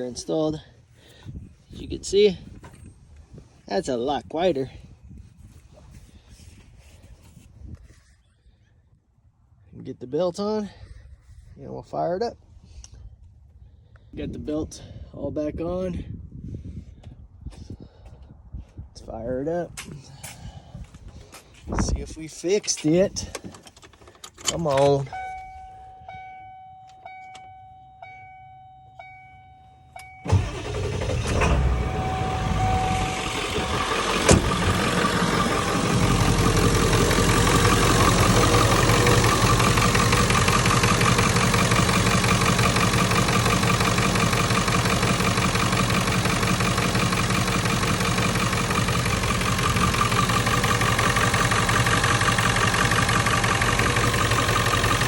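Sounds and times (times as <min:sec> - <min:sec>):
diesel engine starting and idling: 0:29.1 - 0:55.0
dashboard chime: 0:31.9 - 0:33.4.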